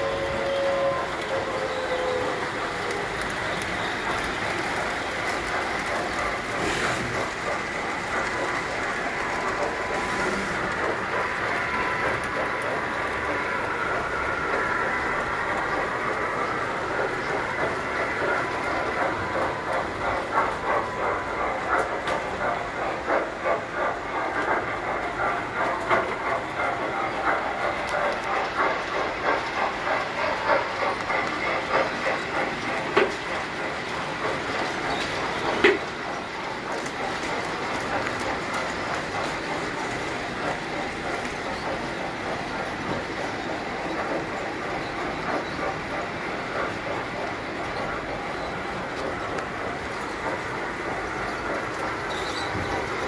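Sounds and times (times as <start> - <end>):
toy train motor whine: 0.0 - 13.8
toy train wheels clicking on track: 0.0 - 53.0.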